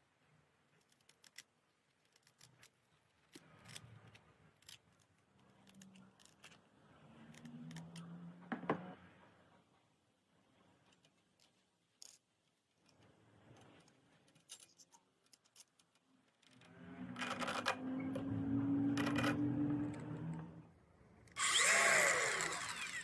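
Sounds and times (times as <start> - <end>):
angle grinder running: 21.4 - 23.0.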